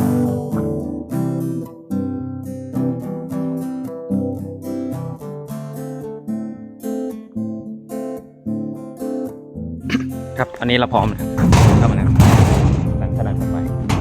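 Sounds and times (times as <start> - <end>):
acoustic guitar strumming: 9.9 - 14.0.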